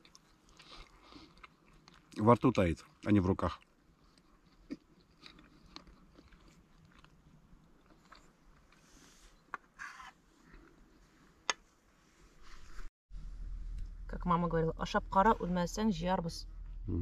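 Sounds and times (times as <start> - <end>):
person chewing food: 0.0 - 2.2, 3.6 - 11.5.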